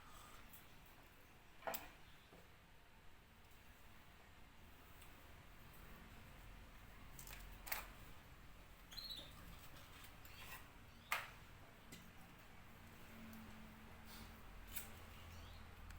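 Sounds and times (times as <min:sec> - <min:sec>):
faint high squeak: 0:08.9 - 0:09.6.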